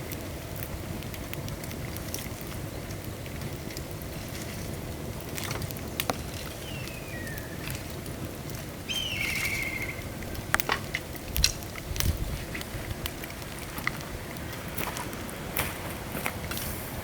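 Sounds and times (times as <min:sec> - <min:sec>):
bamboo fire crackling: 0:00.0 - 0:17.0
rain hissing: 0:00.0 - 0:17.0
bird whistling call: 0:06.6 - 0:07.8, 0:08.8 - 0:10.5.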